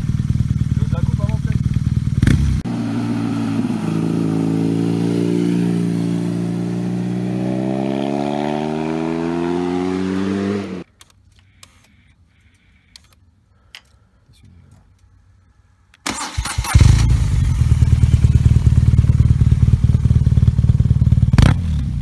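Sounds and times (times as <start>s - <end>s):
motorcycle engine accelerating: 0.0s - 10.8s, 16.1s - 22.0s.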